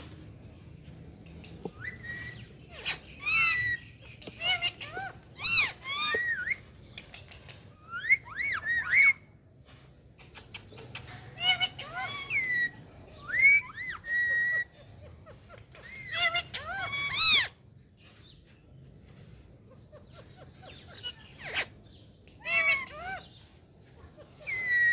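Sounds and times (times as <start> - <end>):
parakeet whistling and chattering: 1.3 - 9.4, 10.2 - 18.3, 19.6 - 24.9.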